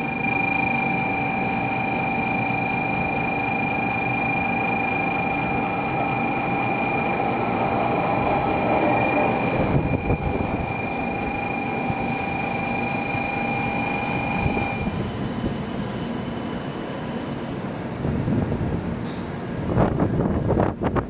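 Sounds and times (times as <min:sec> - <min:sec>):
train brakes squealing: 0:00.0 - 0:21.0
train rumbling: 0:04.6 - 0:21.0.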